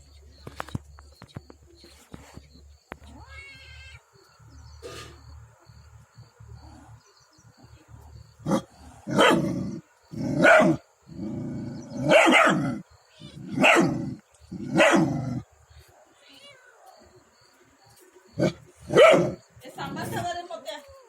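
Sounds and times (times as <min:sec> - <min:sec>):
dog barking: 0:08.5 - 0:10.8, 0:12.0 - 0:12.8, 0:13.5 - 0:17.1, 0:18.4 - 0:19.4.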